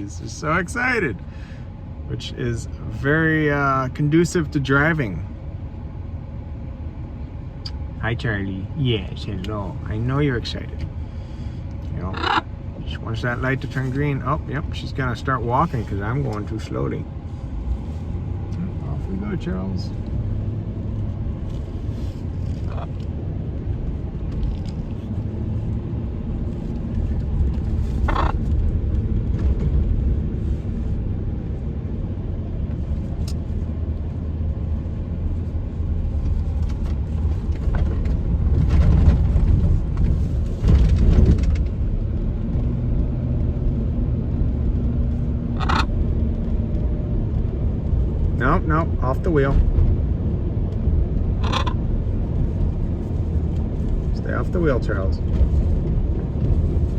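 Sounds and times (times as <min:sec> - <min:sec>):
car engine and road rumble: 0:00.0 - 0:56.9.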